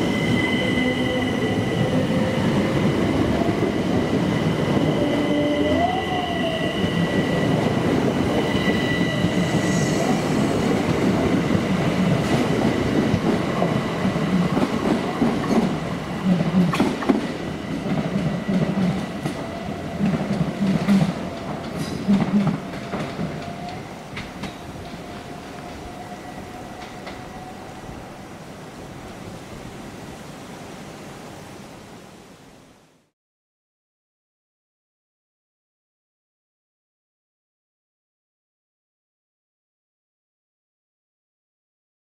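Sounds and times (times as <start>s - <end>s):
train electric whine: 0.0s - 28.4s
train wheels clicking over rail joints: 16.4s - 25.8s.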